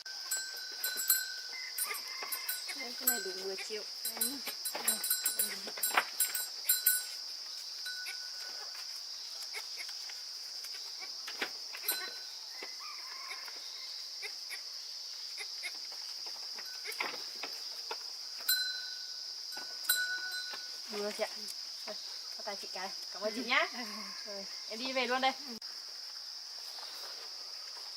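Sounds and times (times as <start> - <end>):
high-pitched insect drone: 0.0 - 27.9
faint animal call: 11.8 - 14.6.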